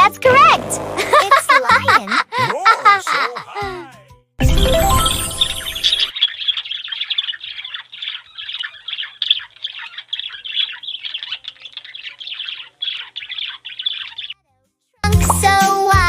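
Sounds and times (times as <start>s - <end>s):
songbirds chirping: 4.9s - 14.5s.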